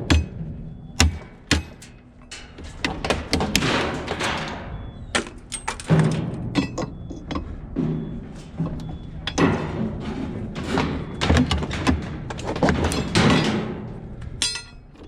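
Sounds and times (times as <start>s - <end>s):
metal scraping rattle: 0.0s - 15.0s
scrap metal knocks and clanks: 0.0s - 15.0s.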